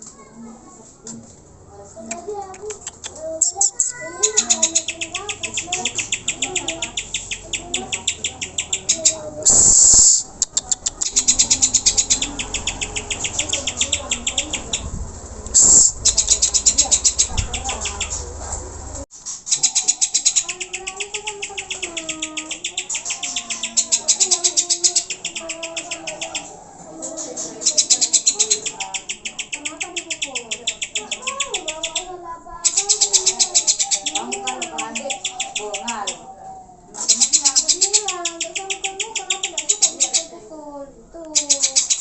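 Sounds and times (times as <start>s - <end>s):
bird singing high chipping notes: 3.5s - 10.3s, 10.9s - 14.9s, 19.4s - 26.6s, 27.2s - 36.3s.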